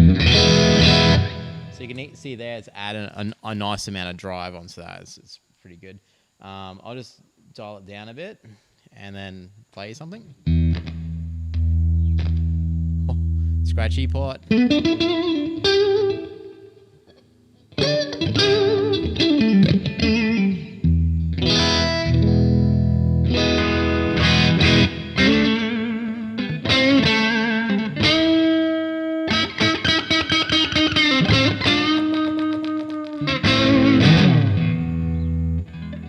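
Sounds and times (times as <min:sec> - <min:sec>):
overdriven electric guitar lick: 0:00.0 - 0:02.2, 0:10.4 - 0:36.0.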